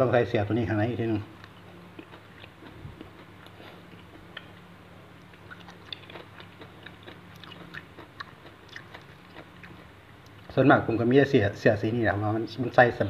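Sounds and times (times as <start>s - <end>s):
person chewing wetly: 1.9s - 4.6s, 5.2s - 10.5s.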